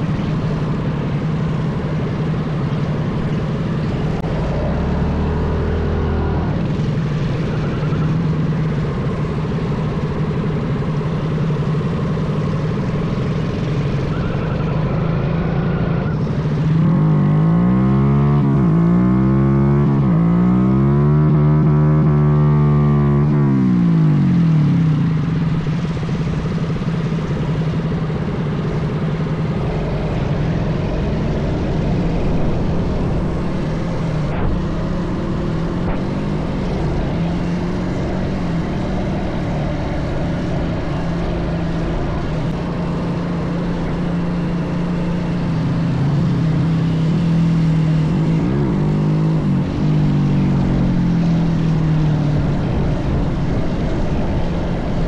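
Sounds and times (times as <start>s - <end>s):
minibike engine running: 23.0s - 55.0s.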